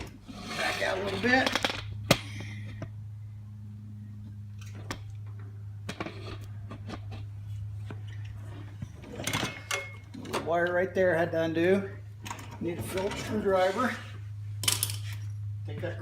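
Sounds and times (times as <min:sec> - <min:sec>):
low electrical hum: 0:00.0 - 0:16.0
clicks of parts and tools: 0:14.6 - 0:15.3.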